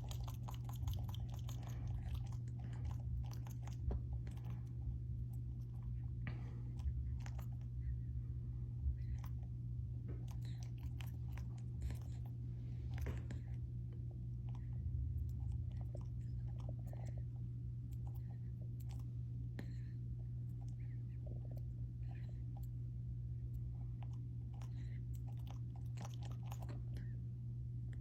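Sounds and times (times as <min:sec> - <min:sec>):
pet nibbling at claws: 0:00.0 - 0:07.7, 0:23.6 - 0:27.1
steady low hum: 0:00.0 - 0:28.0.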